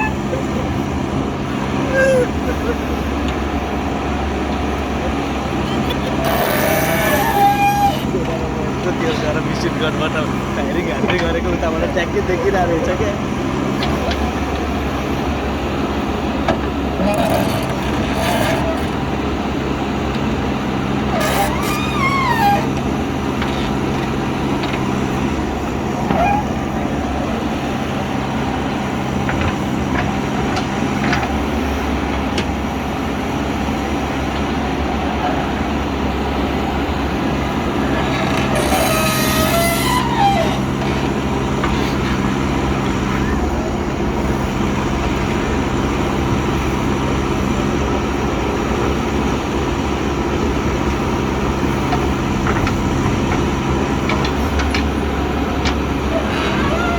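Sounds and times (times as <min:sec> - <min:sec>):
diesel engine running: 0:00.0 - 0:56.9
high squeals dropping in pitch: 0:01.8 - 0:02.6, 0:05.6 - 0:08.2, 0:17.0 - 0:19.0, 0:21.1 - 0:22.8, 0:38.1 - 0:41.1.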